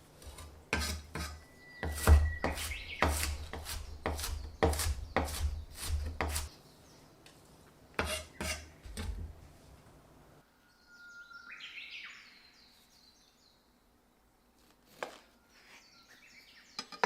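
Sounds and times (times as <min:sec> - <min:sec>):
knife chopping on cutting board: 0:00.8 - 0:06.5.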